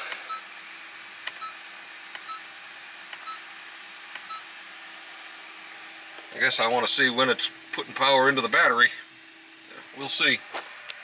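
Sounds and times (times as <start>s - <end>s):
dashboard click and beep: 3.2s - 3.4s, 4.2s - 4.4s.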